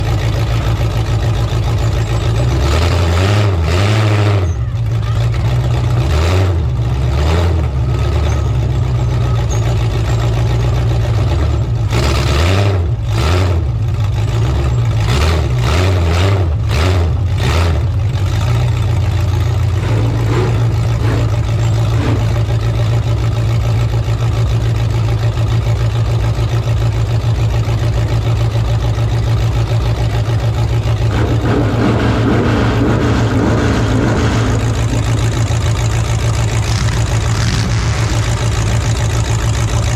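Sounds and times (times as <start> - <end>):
truck engines revving: 0.0 - 39.9
sharp bangs: 31.1 - 39.9.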